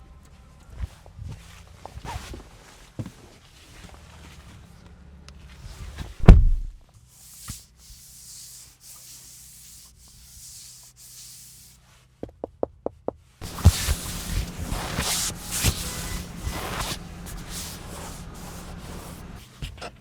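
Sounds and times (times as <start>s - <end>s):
heavy low thump: 6.2s - 6.8s.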